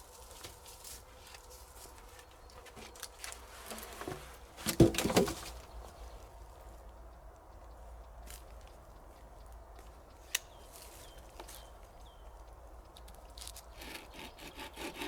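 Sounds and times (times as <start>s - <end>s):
sharp knocks or cracks: 4.7s - 5.6s.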